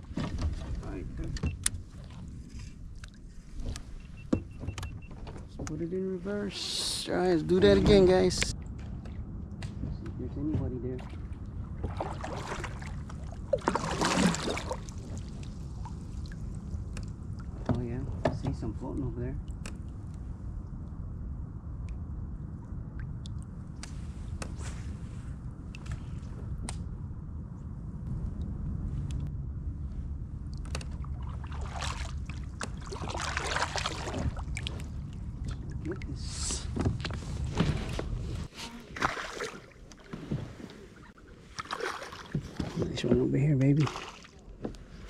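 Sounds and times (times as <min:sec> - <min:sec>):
low water rumble: 0:00.0 - 0:45.0
steady low hum: 0:00.0 - 0:45.0
water splashing against kayak hull: 0:10.9 - 0:18.6, 0:30.6 - 0:45.0.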